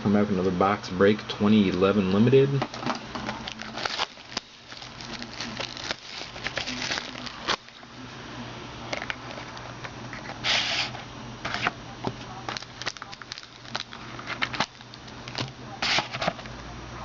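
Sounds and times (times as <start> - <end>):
plastic wrap crinkling and tearing: 2.7 - 7.9, 12.5 - 16.4.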